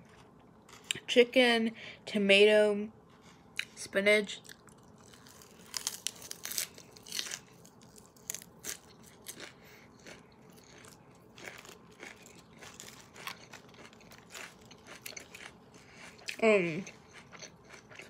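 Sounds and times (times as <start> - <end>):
lettuce crunching: 4.4 - 18.0.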